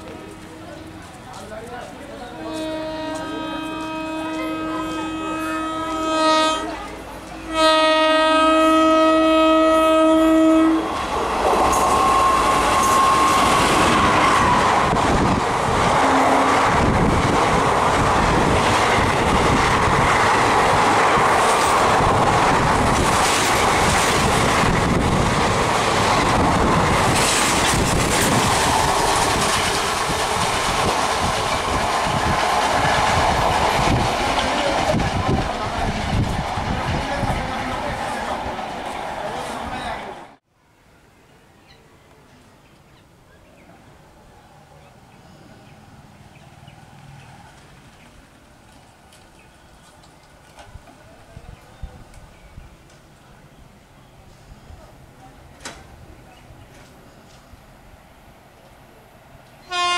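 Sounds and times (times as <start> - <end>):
train passing at speed: 0.0 - 41.1, 43.3 - 59.9
train horn blasts: 2.4 - 6.8, 7.4 - 10.9, 11.8 - 14.6, 15.9 - 16.8, 59.6 - 59.9.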